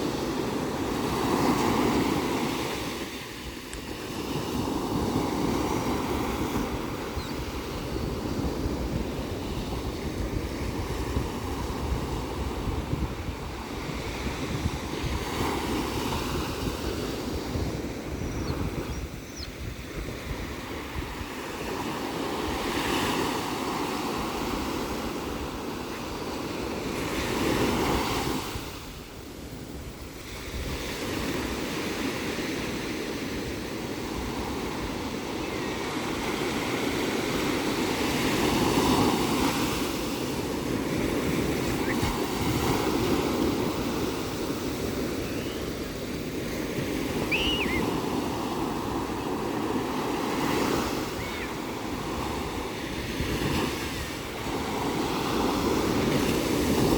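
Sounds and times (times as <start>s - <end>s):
ocean surf breaking: 0.0s - 18.8s, 31.0s - 56.9s.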